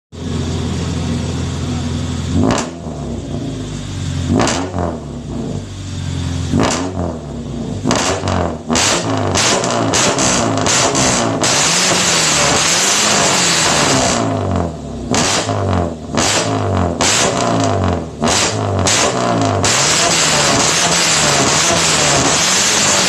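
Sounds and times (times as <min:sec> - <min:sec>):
engine idling and revving: 0:00.1 - 0:23.0.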